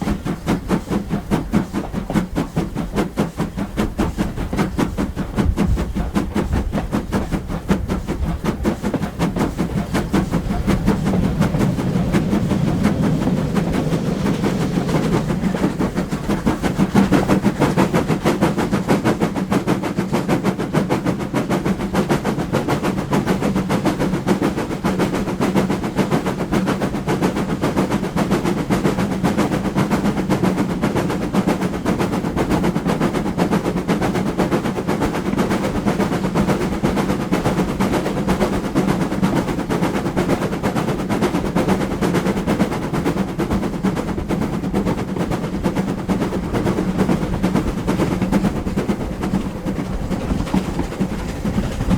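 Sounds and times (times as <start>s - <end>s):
steady low hum: 0.0s - 20.0s
steam train rhythmic clatter: 0.0s - 51.9s.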